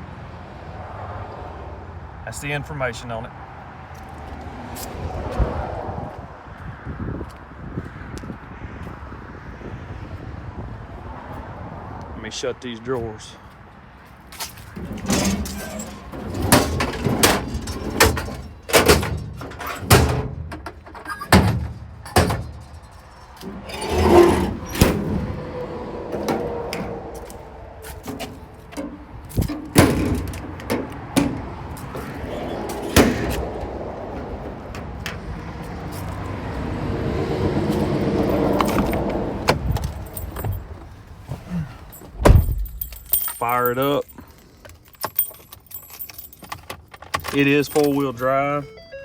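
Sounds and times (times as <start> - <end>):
keys jangling: 14.4 - 24.8, 37.8 - 40.8, 41.8 - 48.9
metal drawers sliding shut: 14.4 - 35.4, 37.7 - 40.8
vehicle passing: 23.0 - 41.8.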